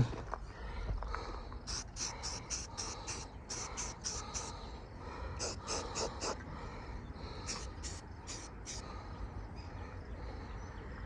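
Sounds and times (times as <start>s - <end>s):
paint scrubbing strokes on car: 1.7s - 4.6s, 5.4s - 6.4s, 7.4s - 8.8s.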